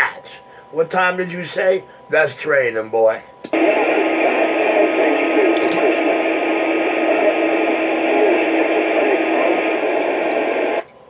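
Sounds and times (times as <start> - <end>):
static hiss: 3.5 - 10.8
faint wavering murmur: 3.6 - 10.8
faint hum tone: 3.6 - 11.0.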